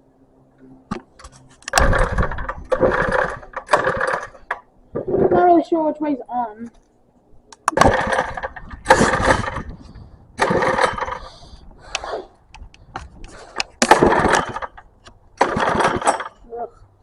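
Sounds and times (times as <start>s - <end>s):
small engine pull-start cranking: 1.6s - 5.3s, 7.7s - 9.7s, 10.4s - 11.3s, 13.8s - 14.8s, 15.4s - 16.4s.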